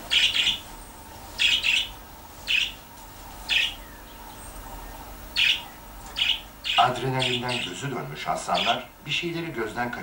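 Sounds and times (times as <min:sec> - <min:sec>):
bird chirping sharply: 0:00.1 - 0:00.6, 0:01.4 - 0:02.8, 0:03.5 - 0:04.4, 0:05.3 - 0:07.8, 0:08.5 - 0:08.9.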